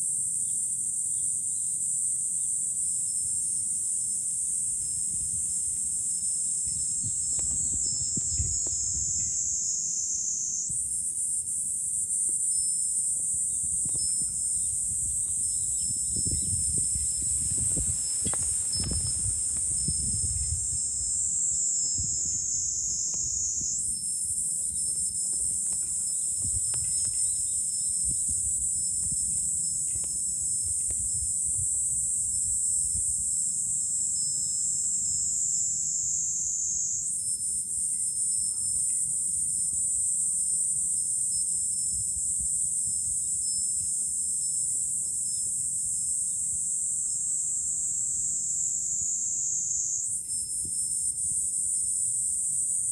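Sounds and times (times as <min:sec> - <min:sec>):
cicadas droning: 0:00.0 - 0:52.9
wind rumbling on microphone: 0:04.6 - 0:09.7, 0:13.1 - 0:33.4, 0:41.8 - 0:44.2.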